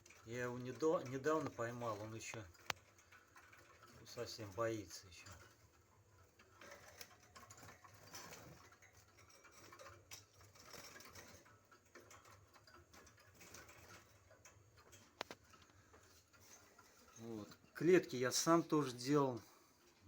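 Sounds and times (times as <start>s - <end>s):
rustling: 0.0s - 20.0s.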